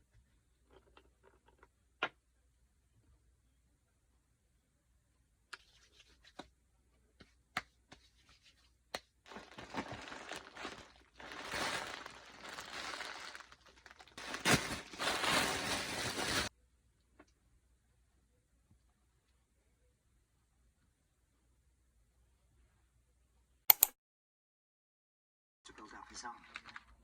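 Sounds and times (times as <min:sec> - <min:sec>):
packaging being torn open: 0:09.3 - 0:16.5
sharp clicks: 0:23.7 - 0:24.0.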